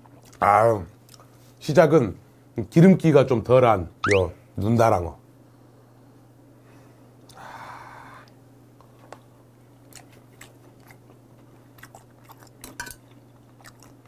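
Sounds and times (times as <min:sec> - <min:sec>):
person chewing: 0:09.9 - 0:14.0.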